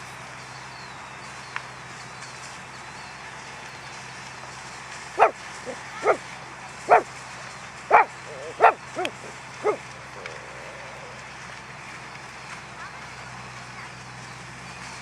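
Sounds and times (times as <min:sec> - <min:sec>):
dog barking: 0:05.2 - 0:06.2, 0:06.9 - 0:07.1, 0:07.9 - 0:11.2.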